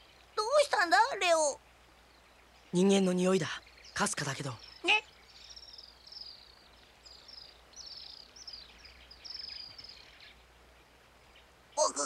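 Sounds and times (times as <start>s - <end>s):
high falling bird chirps: 0.0s - 12.0s.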